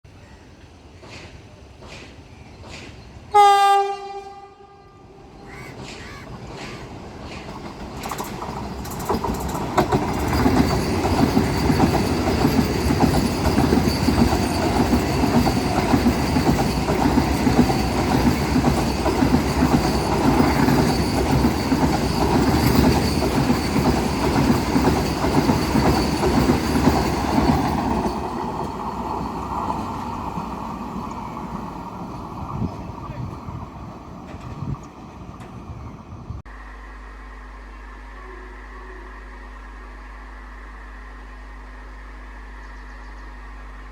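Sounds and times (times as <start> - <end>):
express train passing at speed: 0.1 - 36.5
train wheels clattering over rail joints: 1.0 - 3.1, 5.7 - 31.9.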